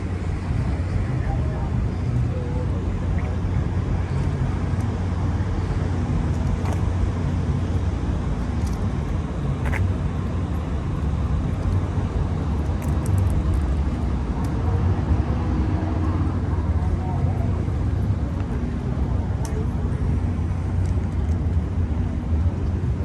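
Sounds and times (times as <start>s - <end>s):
car engine running: 2.7s - 14.4s.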